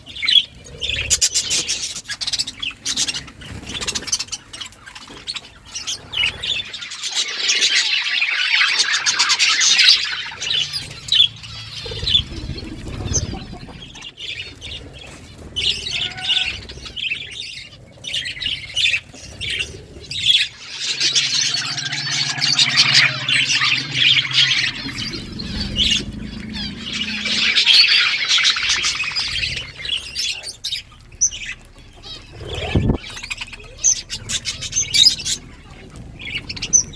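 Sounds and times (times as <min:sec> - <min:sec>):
budgerigars chattering: 0:09.6 - 0:36.9.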